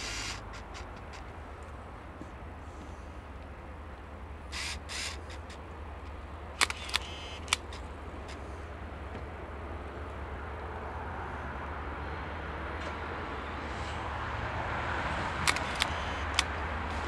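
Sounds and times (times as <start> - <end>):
distant diesel locomotive rumble: 0.0 - 17.0
sharp clicks: 4.6 - 8.4, 15.4 - 16.6.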